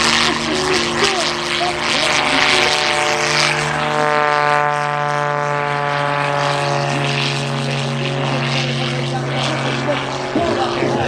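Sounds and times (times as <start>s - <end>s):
propeller plane flying past: 0.0s - 11.0s.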